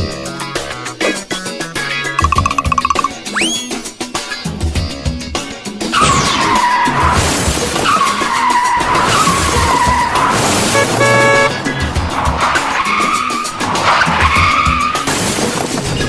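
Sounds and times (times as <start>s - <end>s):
car tyres screeching: 6.7s - 15.7s
car horn honk: 10.8s - 11.6s.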